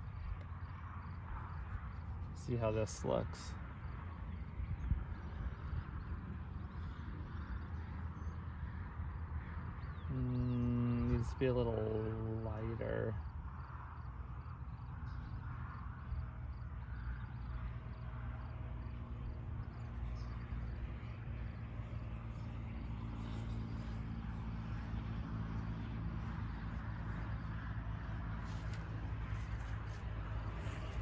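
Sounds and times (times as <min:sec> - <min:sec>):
distant engine drone: 0:00.0 - 0:31.0.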